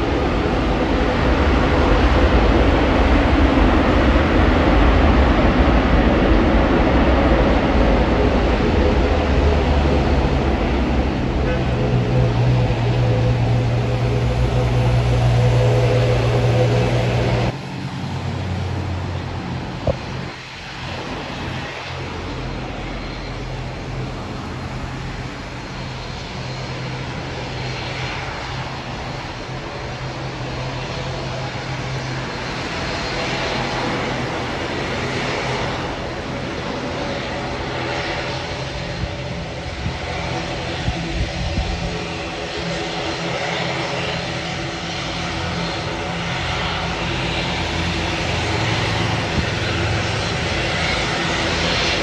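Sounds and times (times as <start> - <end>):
aircraft engine hum: 0.0 - 52.0
broad rushing noise: 0.0 - 52.0.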